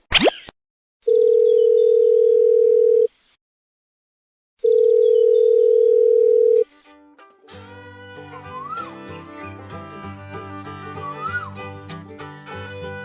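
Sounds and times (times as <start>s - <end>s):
telephone calling tone beeps: 1.1s - 3.1s, 4.6s - 6.6s.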